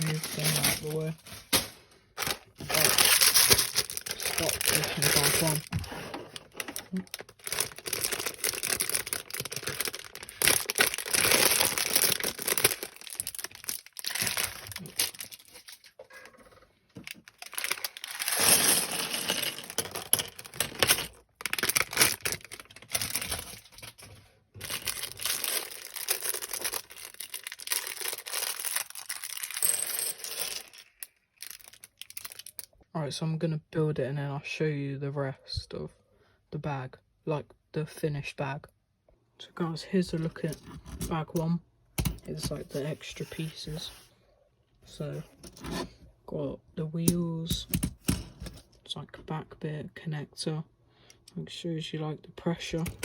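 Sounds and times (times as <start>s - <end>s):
plastic bag crinkling: 0.0s - 1.6s, 2.2s - 16.0s, 17.0s - 32.7s.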